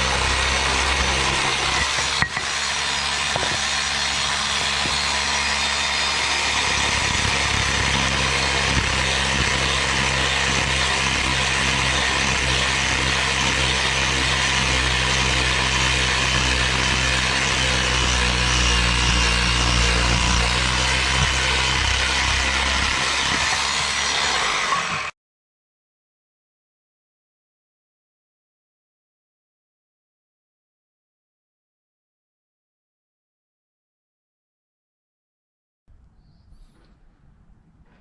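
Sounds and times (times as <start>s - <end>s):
electric saw cutting wood: 0.0s - 25.2s.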